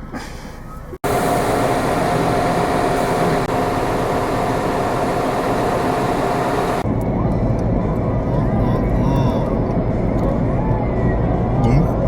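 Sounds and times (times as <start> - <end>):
machine-like rushing noise: 1.0 - 7.0
held hum: 1.0 - 7.7.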